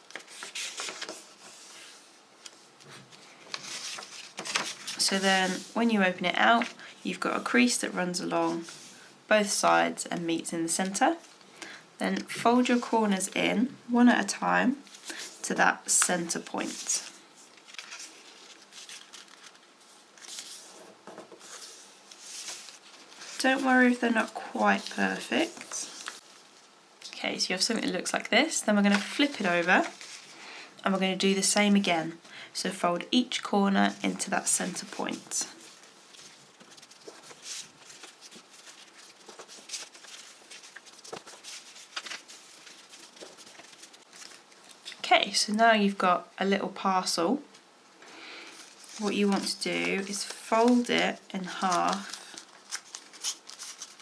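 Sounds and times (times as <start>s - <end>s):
paper rustling: 0.0s - 7.7s, 14.8s - 26.7s, 28.8s - 30.4s, 34.1s - 45.0s, 48.4s - 54.0s.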